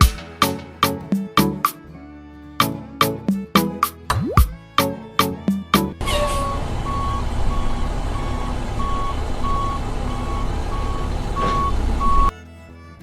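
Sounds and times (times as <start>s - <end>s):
music: 0.0s - 6.0s, 12.3s - 13.0s
low engine rumble: 5.0s - 12.7s
reversing alarm beeping: 6.1s - 12.3s.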